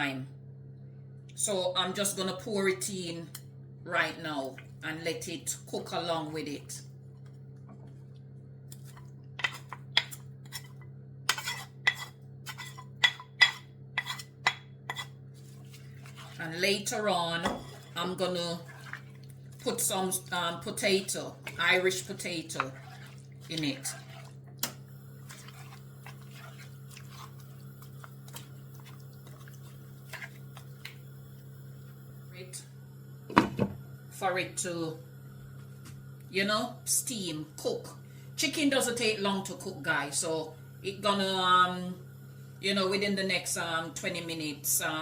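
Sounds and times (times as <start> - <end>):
steady low hum: 0.0 - 45.0
food popping and crackling in pot: 16.2 - 31.1.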